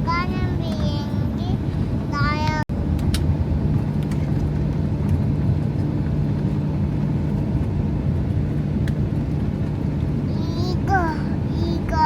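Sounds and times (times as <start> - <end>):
jet airliner cabin drone: 0.0 - 12.0.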